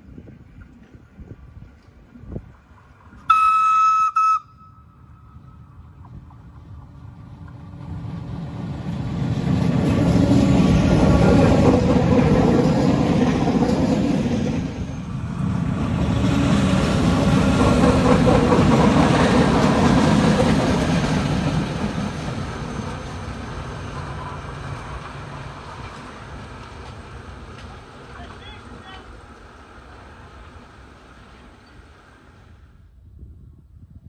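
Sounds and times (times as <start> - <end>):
electric train passing: 0.0 - 33.0.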